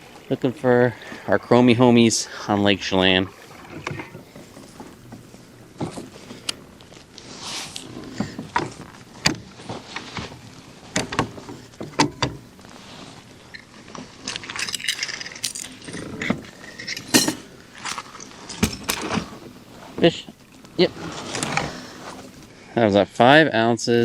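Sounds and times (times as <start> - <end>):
fishing gear clicking and rattling: 3.4 - 22.5.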